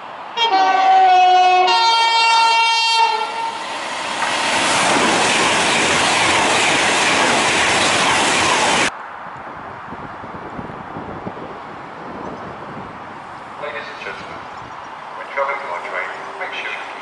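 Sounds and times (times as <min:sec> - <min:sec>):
train passing at speed: 0:00.0 - 0:17.0
two-tone train horn: 0:00.4 - 0:03.6.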